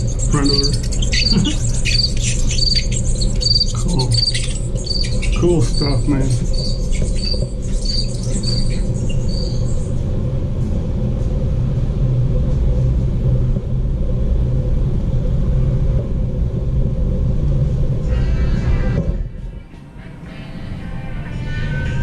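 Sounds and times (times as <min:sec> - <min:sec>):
short high squeaks: 0:00.0 - 0:09.8
steady low rumble: 0:00.0 - 0:22.0.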